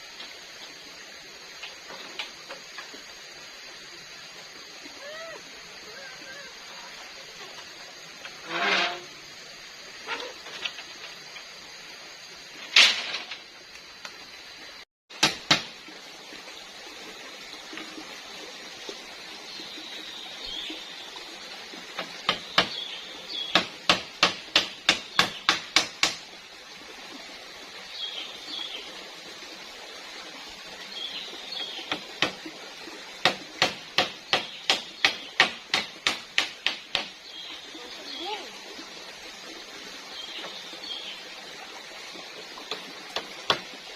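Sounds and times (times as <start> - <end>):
steady outdoor hiss: 0.0 - 43.9
sharp evenly spaced knocks: 15.2 - 15.8, 21.9 - 22.8, 23.5 - 26.3, 31.8 - 32.4, 33.2 - 37.2, 42.7 - 43.8.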